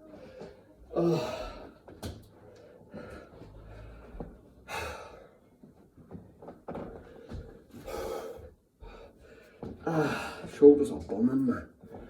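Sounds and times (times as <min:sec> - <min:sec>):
man breathing hard: 0:00.2 - 0:01.8, 0:02.4 - 0:05.4, 0:07.0 - 0:10.6.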